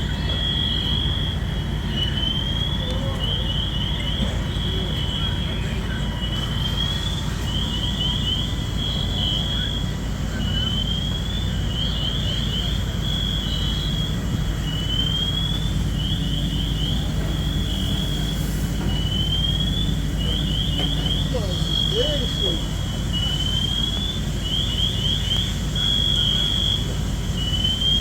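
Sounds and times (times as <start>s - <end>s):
low rumble of engines: 0.0s - 28.0s.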